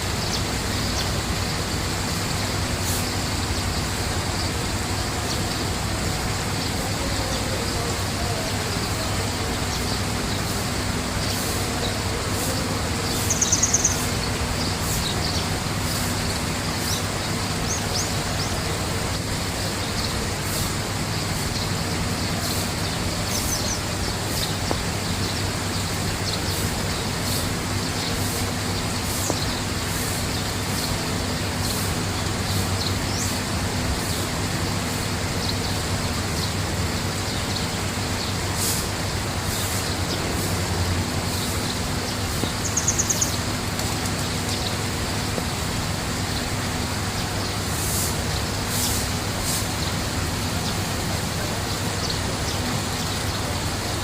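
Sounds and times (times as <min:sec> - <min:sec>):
rushing background noise: 0:00.0 - 0:54.0
small birds chirping: 0:00.0 - 0:54.0
bird trill: 0:11.2 - 0:18.7, 0:41.3 - 0:44.8.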